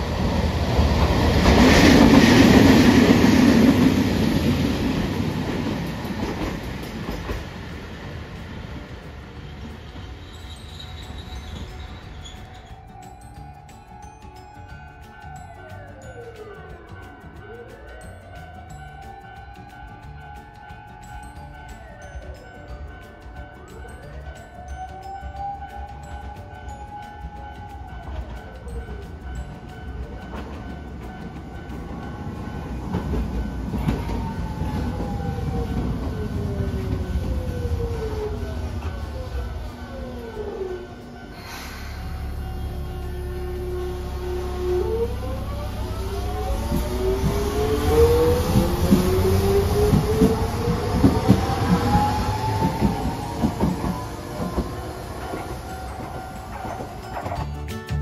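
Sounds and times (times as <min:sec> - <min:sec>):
tram wheels clacking on rail: 0:00.0 - 0:58.0
tram whine falling in pitch: 0:23.7 - 0:57.4.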